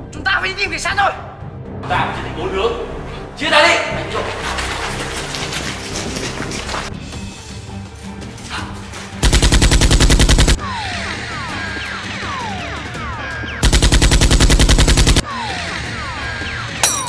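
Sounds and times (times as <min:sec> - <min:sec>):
machine-gun fire: 0:09.2 - 0:10.6, 0:13.6 - 0:15.2.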